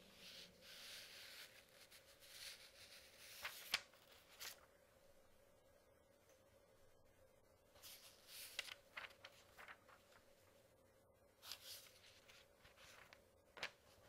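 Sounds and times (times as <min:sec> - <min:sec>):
paper pages rustling: 0:00.0 - 0:04.7, 0:07.8 - 0:10.6, 0:11.4 - 0:14.0.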